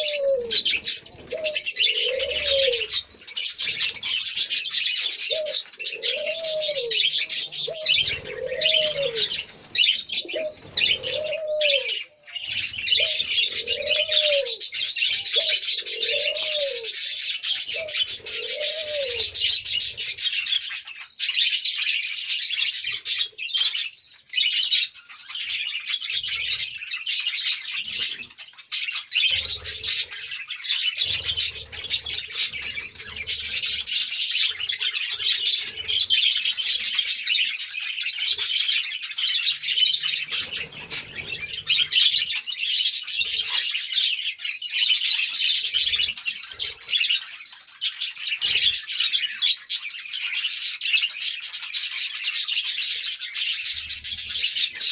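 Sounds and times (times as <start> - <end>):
budgerigars chattering: 0.0 - 54.9.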